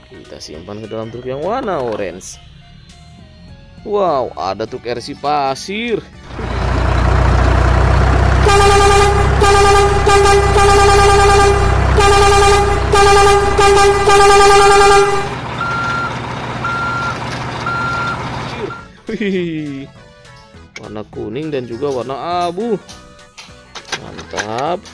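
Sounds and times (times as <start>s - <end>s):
truck engine rumble: 6.2s - 19.0s
truck horn blasts: 6.3s - 18.9s
reversing beeps: 14.2s - 19.0s.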